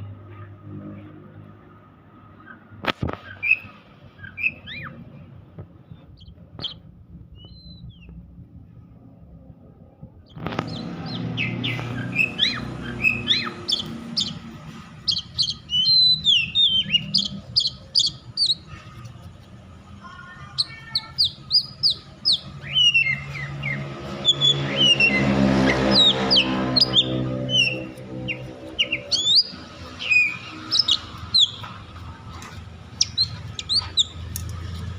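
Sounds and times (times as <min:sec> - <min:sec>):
bird singing sharp whistles: 0:04.3 - 0:04.9, 0:07.4 - 0:08.1, 0:15.1 - 0:18.6, 0:20.6 - 0:25.2, 0:25.9 - 0:31.6.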